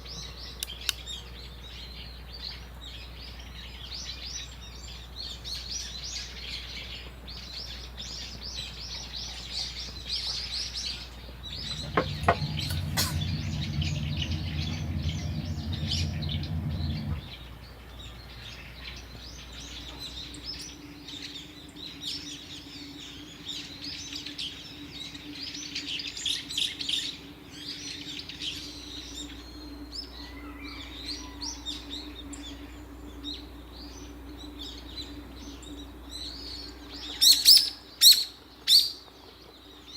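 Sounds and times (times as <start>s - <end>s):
low hum: 11.1s - 18.3s
faint steady low tone: 11.4s - 17.6s.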